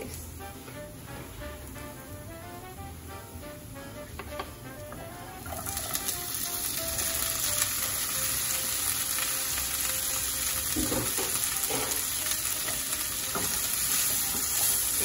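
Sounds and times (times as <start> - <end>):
green beans sizzling in a frying pan: 3.8 - 15.0.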